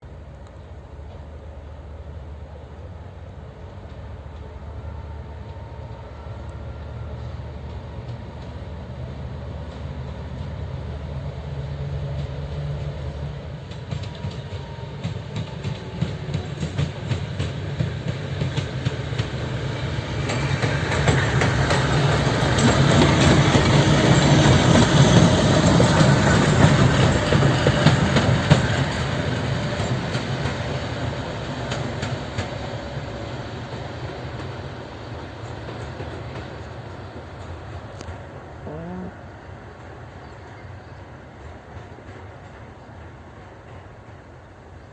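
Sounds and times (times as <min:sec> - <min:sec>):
locomotive engine drone: 0:00.1 - 0:44.8
wheels clicking over rail joints: 0:12.0 - 0:33.0.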